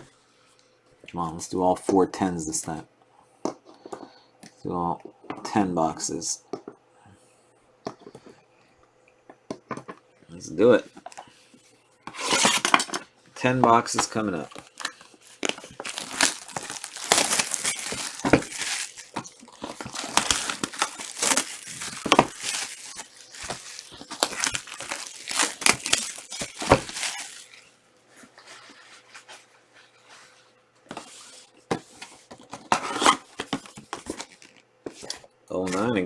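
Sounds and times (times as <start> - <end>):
plastic wrapping crinkling and tearing: 13.9 - 27.7, 33.0 - 34.6
soft rustles: 14.4 - 31.4.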